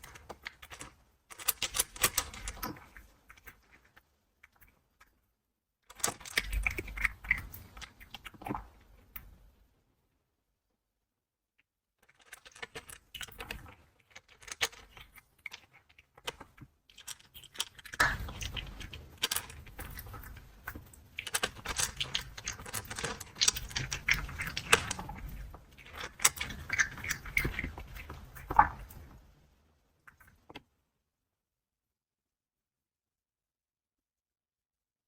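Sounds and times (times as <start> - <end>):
cat crunching dry kibble: 0.0 - 4.6, 5.9 - 8.8, 12.0 - 29.1.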